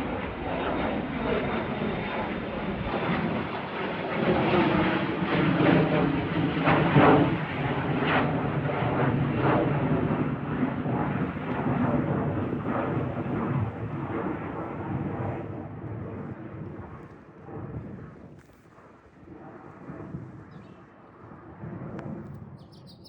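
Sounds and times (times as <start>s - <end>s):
airplane engines roaring: 0.0s - 23.0s.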